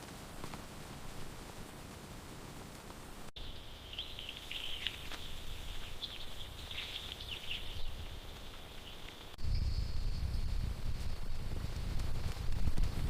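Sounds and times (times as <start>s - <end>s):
short high chirping calls: 3.4s - 9.8s.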